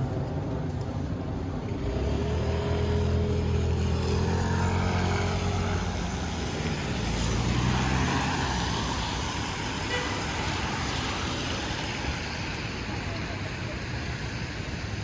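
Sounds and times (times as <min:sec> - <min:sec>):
rain and wet road hiss: 0:01.7 - 0:15.0.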